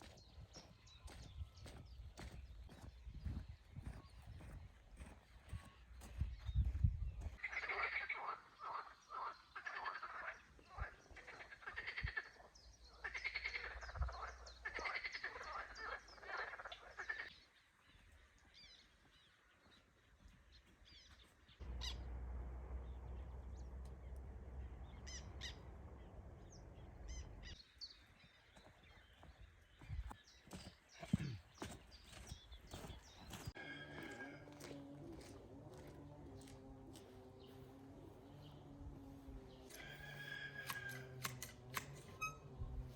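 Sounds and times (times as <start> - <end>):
chorus of croaks and chirps: 7.3 - 17.5.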